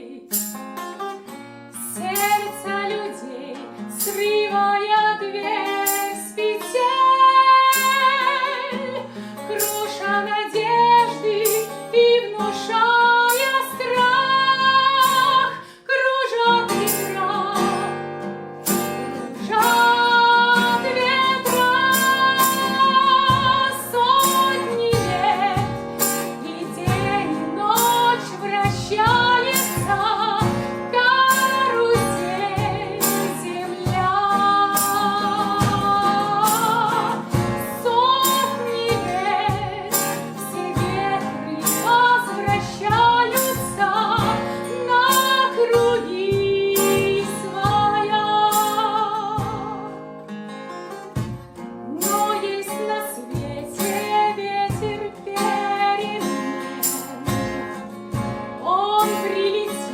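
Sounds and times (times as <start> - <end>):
women singing pop ballad: 0.0 - 0.5, 1.8 - 18.0, 19.3 - 50.0, 51.9 - 57.6, 58.6 - 59.9
instrumental accompaniment: 16.7 - 59.9
steady percussive beat: 33.9 - 37.7, 51.1 - 51.6.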